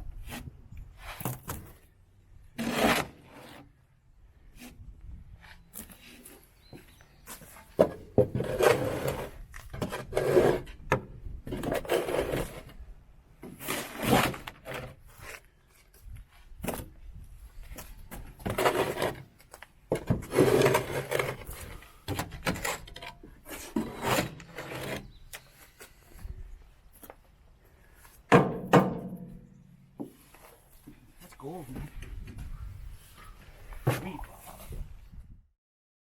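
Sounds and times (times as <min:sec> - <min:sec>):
scraper blade scraping truck bed: 0:02.6 - 0:03.6, 0:08.2 - 0:10.8, 0:11.5 - 0:12.8, 0:13.4 - 0:15.4, 0:18.4 - 0:19.3, 0:20.0 - 0:25.2.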